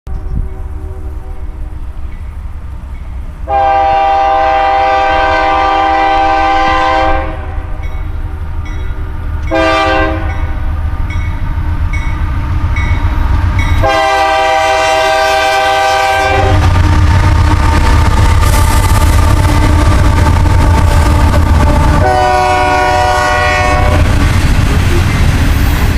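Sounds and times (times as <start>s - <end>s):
train rumbling: 0.1s - 25.9s
locomotive air horn blasts: 3.5s - 7.8s, 9.5s - 10.6s, 13.8s - 16.8s, 18.4s - 24.1s.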